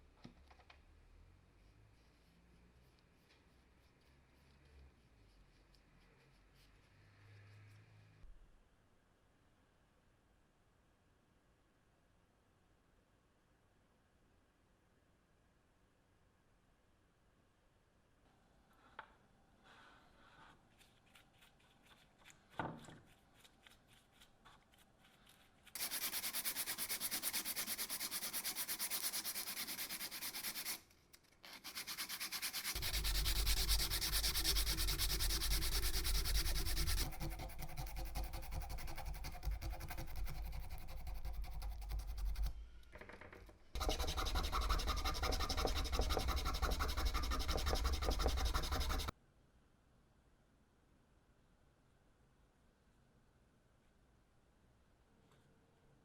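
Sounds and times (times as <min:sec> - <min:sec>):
abrasive sanding: 0:23.1 - 0:30.8, 0:31.5 - 0:42.7, 0:43.8 - 0:49.1.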